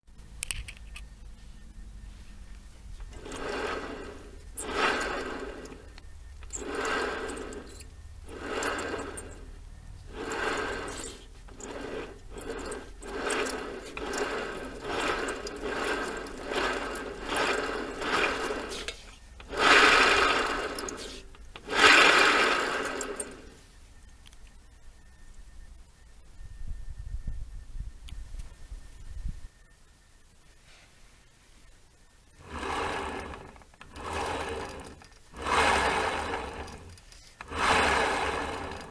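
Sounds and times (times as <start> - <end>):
scooter rear wheel rattling: 2.7 - 23.6, 32.4 - 38.9.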